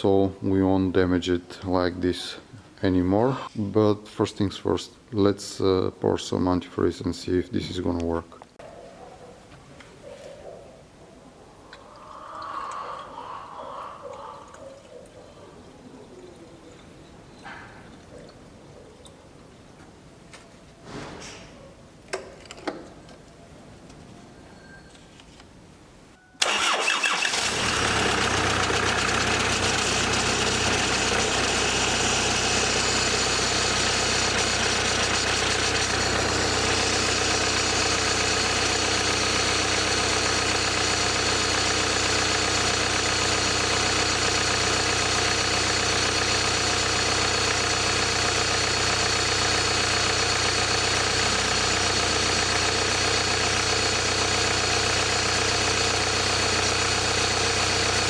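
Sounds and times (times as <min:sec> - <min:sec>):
car engine idling: 0:26.4 - 0:58.0
car engine starting: 0:26.4 - 0:58.0.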